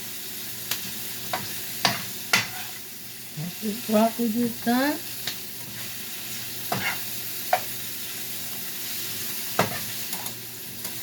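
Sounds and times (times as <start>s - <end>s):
oil sizzling in frying pan: 0.0s - 11.0s.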